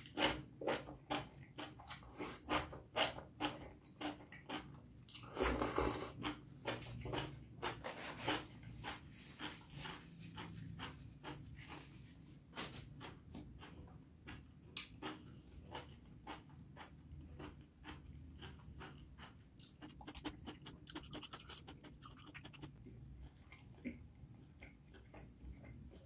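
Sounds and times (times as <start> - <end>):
person chewing food: 0.0 - 26.0
wet mouth clicks and lip smacks: 19.6 - 22.8.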